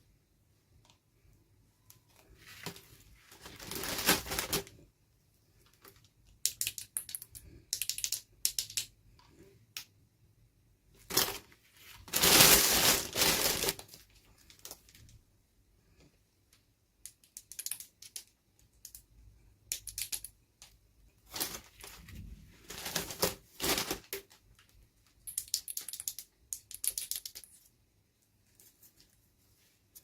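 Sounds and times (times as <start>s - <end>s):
packaging crinkling and rustling: 2.4s - 4.8s, 11.0s - 15.0s, 21.3s - 24.4s
plastic pieces clicking: 5.8s - 9.9s, 17.0s - 19.1s, 19.7s - 20.8s, 25.2s - 27.6s.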